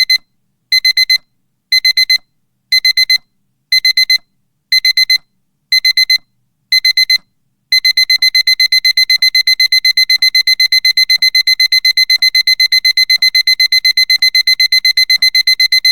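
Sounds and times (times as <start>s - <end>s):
alarm clock beeping: 7.8s - 15.9s.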